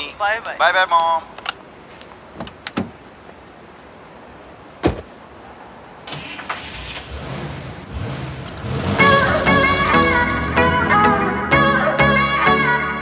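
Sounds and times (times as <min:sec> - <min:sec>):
car door shutting: 0:02.3 - 0:03.0, 0:04.8 - 0:05.1
car engine starting and running: 0:06.0 - 0:11.8
music: 0:09.0 - 0:13.0.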